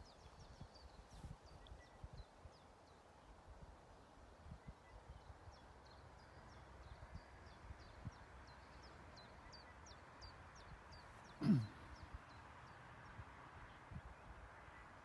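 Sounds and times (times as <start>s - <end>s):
faint small bird chirping: 0.0s - 3.2s, 4.4s - 12.4s.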